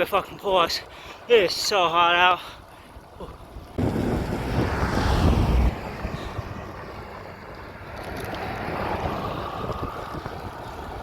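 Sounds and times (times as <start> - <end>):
wind buffeting microphone: 3.0 - 11.0.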